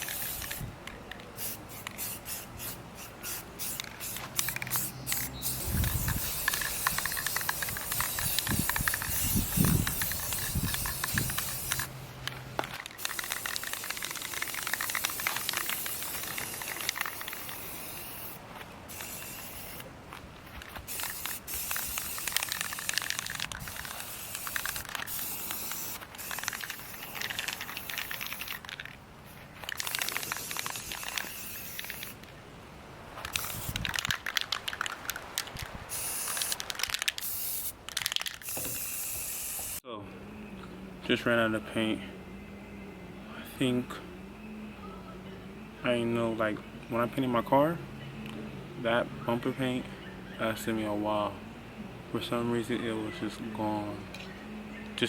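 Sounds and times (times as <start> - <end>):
spray-paint can hissing: 0.0 - 0.6, 1.4 - 12.0, 12.8 - 19.9, 20.5 - 28.9, 29.6 - 32.2, 33.2 - 35.2, 35.9 - 39.8.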